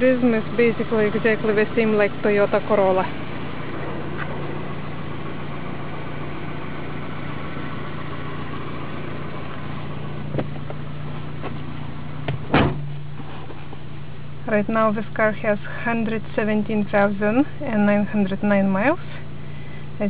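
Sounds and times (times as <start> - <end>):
car engine idling: 0.0 - 20.0
loud knock: 12.3 - 12.9.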